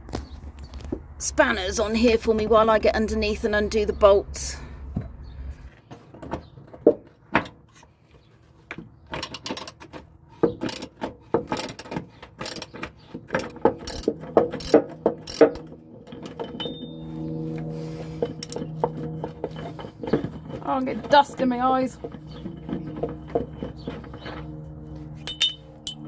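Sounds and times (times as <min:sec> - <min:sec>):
low hum: 0:00.0 - 0:05.8, 0:13.4 - 0:26.0
ratchet spanner clicking: 0:10.6 - 0:16.5, 0:18.4 - 0:18.6.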